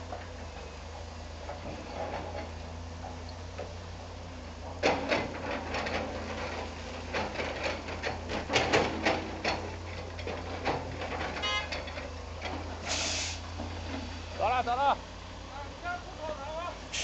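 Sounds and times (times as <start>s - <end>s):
low engine hum: 0.0s - 17.0s
knocking and clicking clatter: 4.8s - 12.7s.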